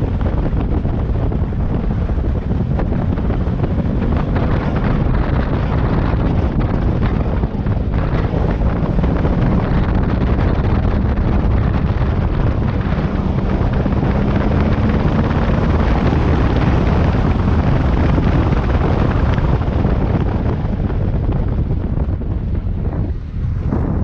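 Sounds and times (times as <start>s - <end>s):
motorcycle engine running: 0.0s - 24.0s
wind buffeting microphone: 0.0s - 24.0s.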